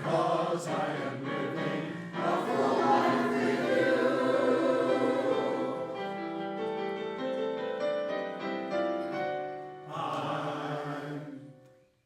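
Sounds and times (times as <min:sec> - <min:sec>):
choir holding a chord: 0:00.0 - 0:06.6, 0:09.7 - 0:11.6
piano notes and chords: 0:00.0 - 0:10.5.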